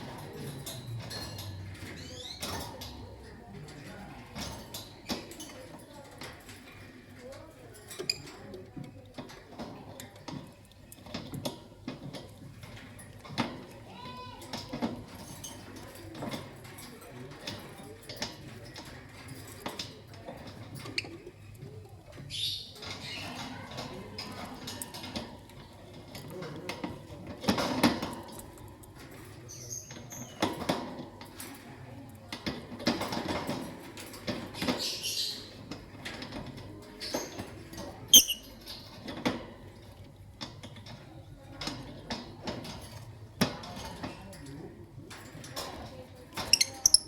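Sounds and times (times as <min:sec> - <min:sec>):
light clicks and scratching: 0:00.0 - 0:47.0
bird chirp: 0:38.2 - 0:38.5
lovebirds chirping: 0:38.2 - 0:38.5, 0:46.5 - 0:47.0.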